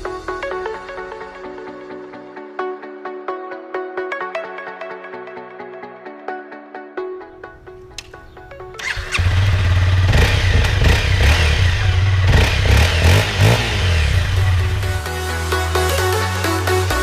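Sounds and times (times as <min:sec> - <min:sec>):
electronic music: 0:00.0 - 0:08.9, 0:10.3 - 0:17.0
dirt bike engine revving: 0:08.8 - 0:16.4.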